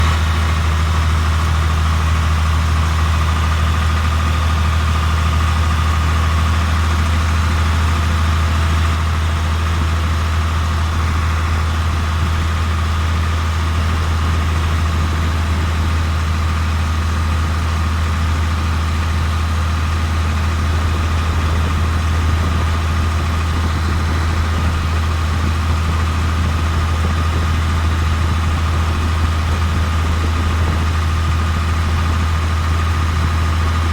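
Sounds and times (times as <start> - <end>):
tractor engine droning: 0.0 - 33.9.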